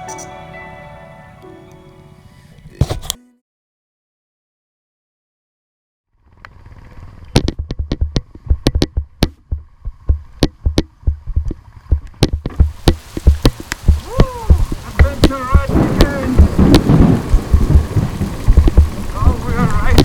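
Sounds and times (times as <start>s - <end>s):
raindrops striking microphone: 6.4s - 20.0s.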